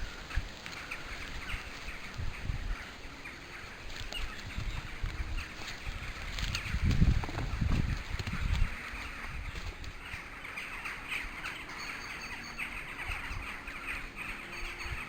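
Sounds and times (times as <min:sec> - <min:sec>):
low rumbles and thumps: 0:04.0 - 0:10.1.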